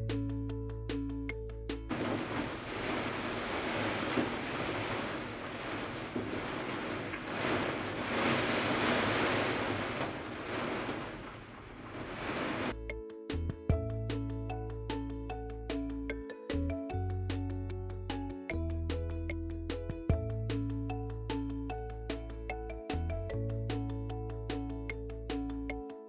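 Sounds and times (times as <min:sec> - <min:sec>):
gusting wind: 0:01.9 - 0:12.8.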